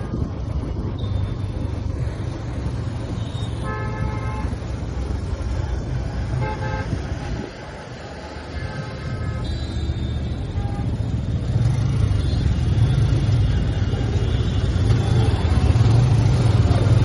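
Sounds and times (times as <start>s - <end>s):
vehicle horn honking: 3.2s - 4.5s.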